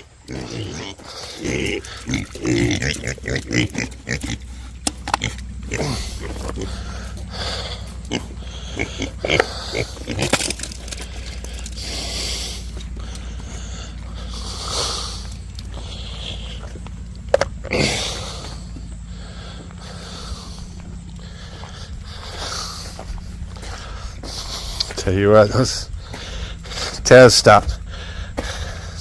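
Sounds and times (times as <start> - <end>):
pigs grunting: 0.0 - 29.0
low rumble: 1.0 - 29.0.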